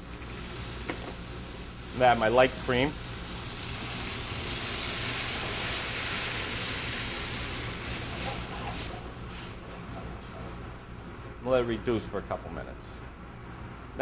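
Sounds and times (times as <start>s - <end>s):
cream sizzling in a hot pan: 0.0s - 10.0s.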